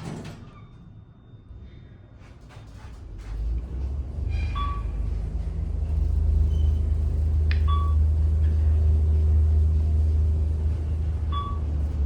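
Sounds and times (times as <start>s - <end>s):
elevator car rumbling: 2.7s - 12.0s.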